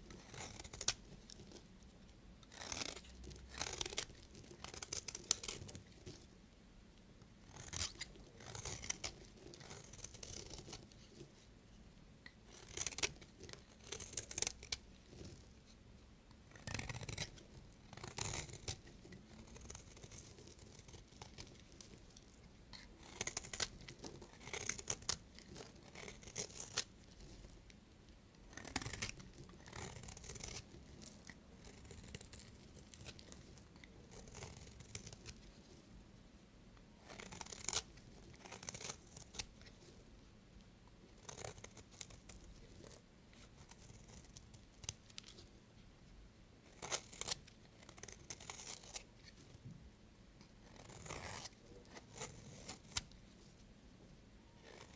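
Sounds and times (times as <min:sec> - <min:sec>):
knife cutting through soap: 0:02.5 - 0:05.7, 0:12.5 - 0:15.4, 0:16.6 - 0:27.4, 0:28.4 - 0:35.4, 0:37.0 - 0:39.6, 0:46.8 - 0:49.1, 0:50.7 - 0:53.2, 0:54.6 - 0:54.9.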